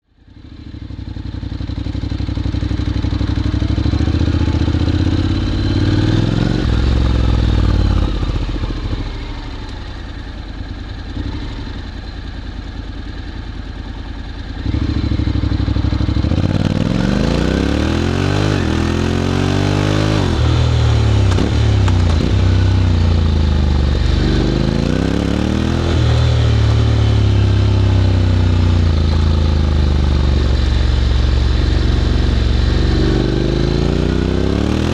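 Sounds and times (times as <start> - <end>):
motorcycle engine revving and accelerating: 0.3 - 10.2, 10.9 - 12.1, 14.4 - 34.9.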